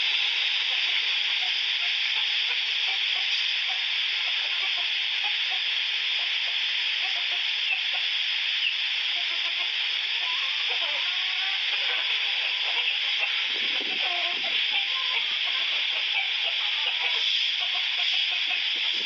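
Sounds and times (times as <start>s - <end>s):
strong wind blowing: 13.4s - 14.6s, 18.8s - 19.0s.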